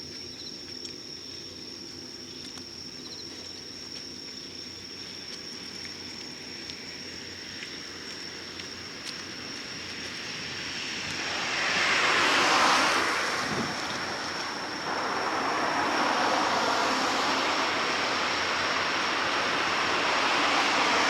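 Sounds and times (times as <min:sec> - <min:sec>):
insects trilling: 0:00.0 - 0:21.0
vehicle passing by: 0:10.0 - 0:21.0.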